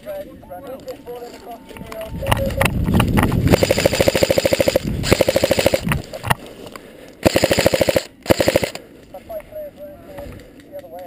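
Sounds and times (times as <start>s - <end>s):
airsoft gun firing bursts: 3.4s - 6.0s, 7.2s - 8.8s.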